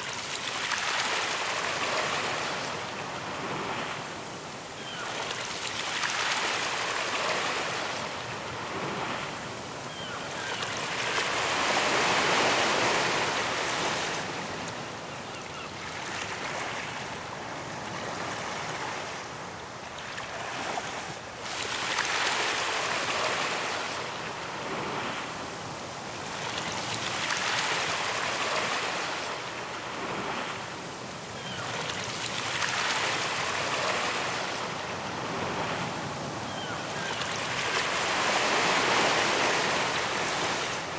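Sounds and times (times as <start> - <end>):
waves breaking on a beach: 0.0 - 40.9.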